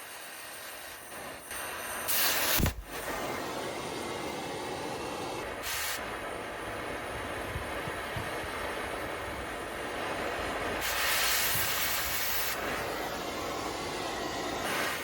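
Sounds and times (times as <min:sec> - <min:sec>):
compressed air hissing: 0:00.0 - 0:06.2, 0:10.6 - 0:15.0
sharp thump: 0:02.6 - 0:03.0.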